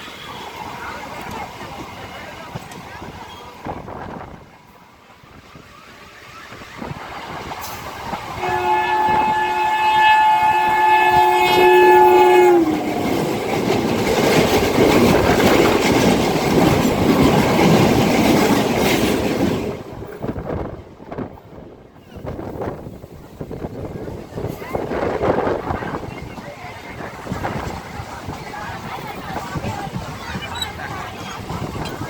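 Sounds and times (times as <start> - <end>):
electric train rumbling past: 0.0 - 32.0
train horn: 8.4 - 13.4.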